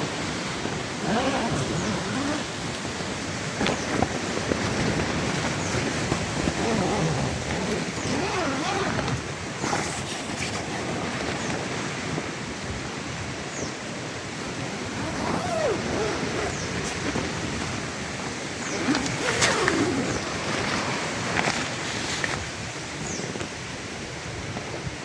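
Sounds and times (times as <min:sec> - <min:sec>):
sharp flaps or clicks: 0:14.5 - 0:20.8.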